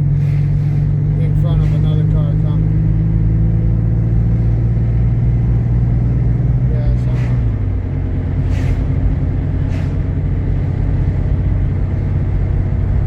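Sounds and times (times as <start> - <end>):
car engine and tyre drone: 0.0 - 13.0
short hisses: 0.2 - 0.9, 8.4 - 10.1.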